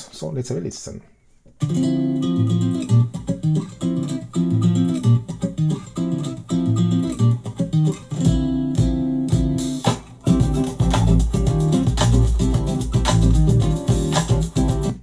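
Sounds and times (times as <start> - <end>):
plucked guitar notes: 1.6 - 15.0
sharp drum-like hits: 8.2 - 15.0
deep bass line: 10.3 - 14.9.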